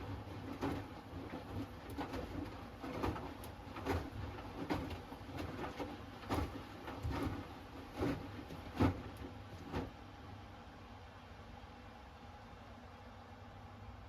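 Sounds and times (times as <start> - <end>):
laundry thudding and sloshing in drum: 0.0 - 10.3
washing machine low hum: 0.0 - 14.0.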